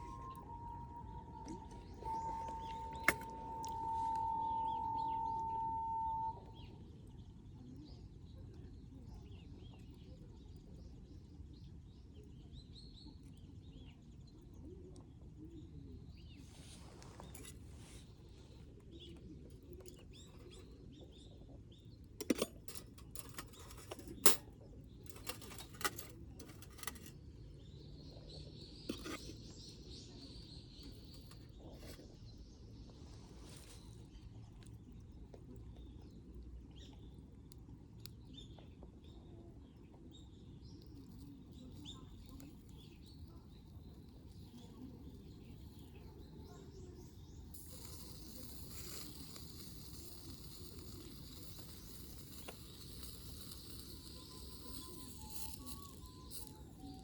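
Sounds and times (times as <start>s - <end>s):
faint bird chirps: 0.0s - 10.8s, 38.1s - 57.0s.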